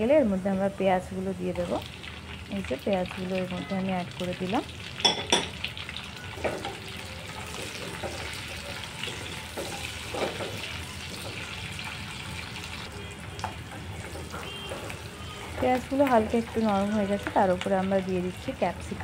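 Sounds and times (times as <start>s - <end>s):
onions sizzling in hot oil: 0.0s - 19.0s.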